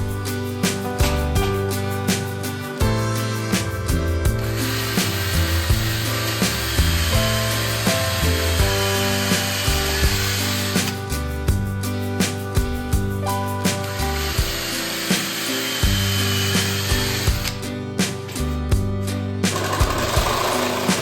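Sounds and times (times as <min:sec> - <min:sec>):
background music with steady beat: 0:00.0 - 0:21.0
power tool running on wood: 0:04.2 - 0:11.2, 0:13.6 - 0:17.7, 0:19.4 - 0:21.0.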